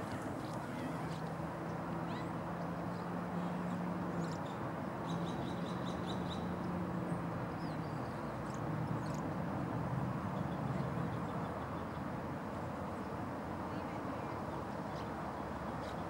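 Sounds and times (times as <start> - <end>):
small birds chirping: 0.0 - 9.3.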